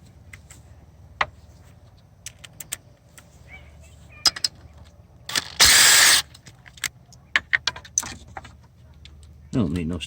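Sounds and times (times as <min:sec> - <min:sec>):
rushing burst: 0:05.6 - 0:06.2.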